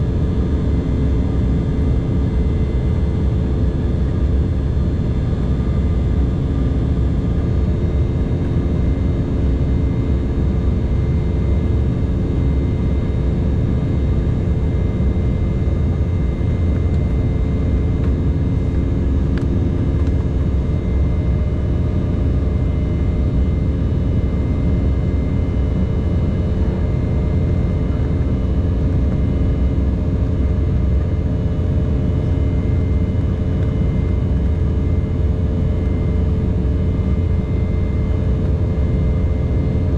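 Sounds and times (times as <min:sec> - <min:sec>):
aircraft cabin engine rumble: 0:00.0 - 0:39.9
steady hums: 0:11.7 - 0:39.9.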